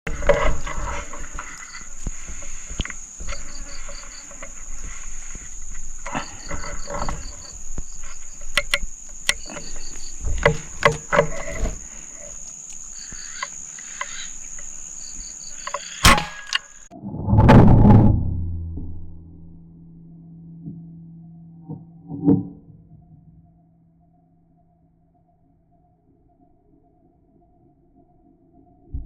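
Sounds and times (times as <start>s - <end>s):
insects droning: 0.1s - 16.9s
rustling: 0.1s - 16.9s
sharp clicks: 1.3s - 16.9s.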